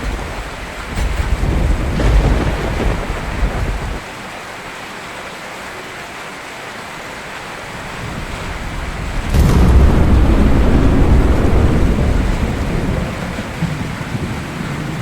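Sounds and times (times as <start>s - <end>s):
thunder rumble: 0.0s - 4.0s, 8.1s - 15.0s
steady rain: 0.0s - 15.0s
loud thunderclap: 0.1s - 4.0s, 8.7s - 15.0s.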